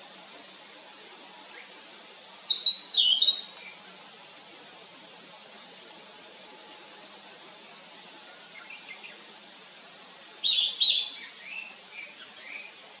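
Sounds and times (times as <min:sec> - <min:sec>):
flycatcher singing: 0:02.4 - 0:03.8, 0:08.4 - 0:09.3, 0:10.4 - 0:13.0.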